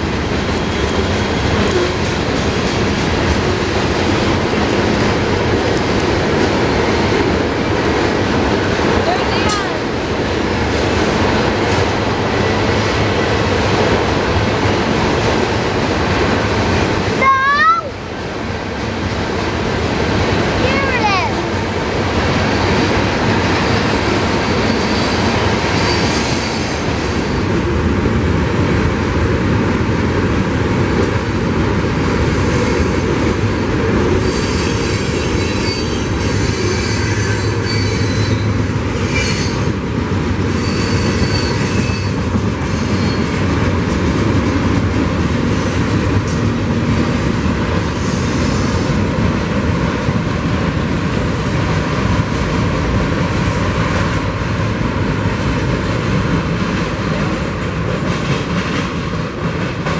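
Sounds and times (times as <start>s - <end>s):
train wheels rumbling on track: 0.0s - 59.9s
high-pitched wheel squeals: 34.2s - 39.6s, 40.5s - 43.3s.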